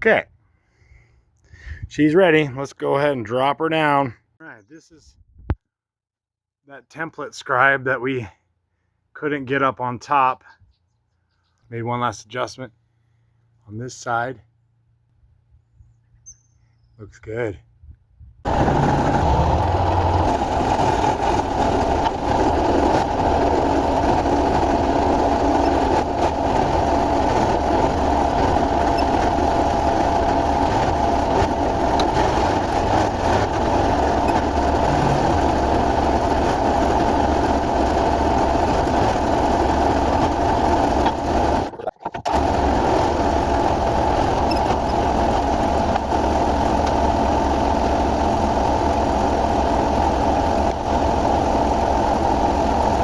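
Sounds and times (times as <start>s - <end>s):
engine running: 18.5s - 53.0s.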